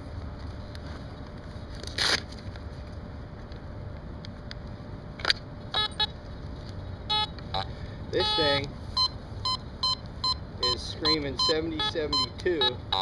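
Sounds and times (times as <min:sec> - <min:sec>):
metal detector beeps: 0:05.8 - 0:06.1, 0:07.1 - 0:13.0.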